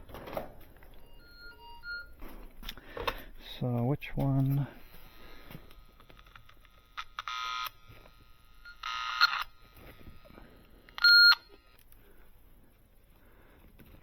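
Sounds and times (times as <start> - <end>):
electronic device beeping: 0.9 - 2.2, 11.0 - 11.8.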